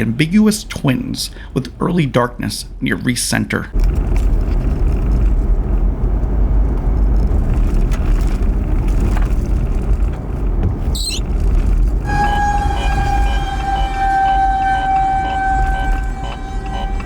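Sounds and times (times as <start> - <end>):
road and wind noise: 3.7 - 12.2
steady siren tone: 12.0 - 17.0.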